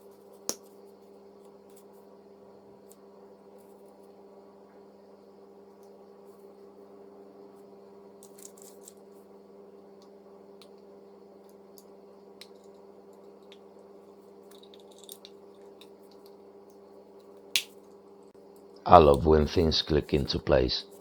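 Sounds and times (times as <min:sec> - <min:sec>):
steady electrical hum: 0:00.0 - 0:21.0.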